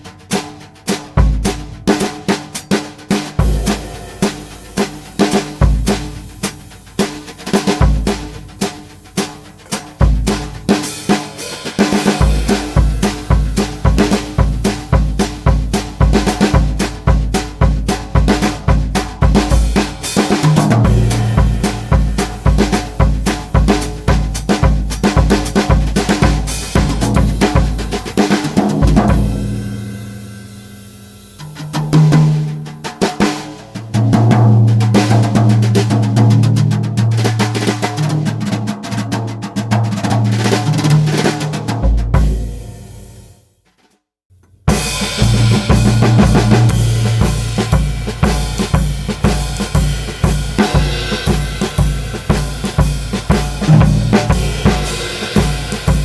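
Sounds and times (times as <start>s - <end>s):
brush strokes on snare and cymbals: 0.0s - 36.4s, 44.5s - 56.0s
bass drum kicks: 3.4s - 6.4s, 12.2s - 29.7s, 44.7s - 56.0s.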